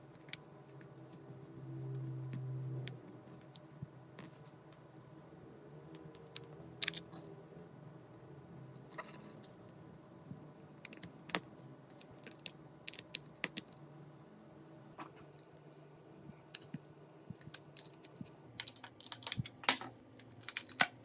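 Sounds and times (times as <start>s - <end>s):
tools and parts clicking: 6.2s - 7.3s, 8.6s - 9.7s, 10.8s - 13.8s, 16.6s - 21.0s.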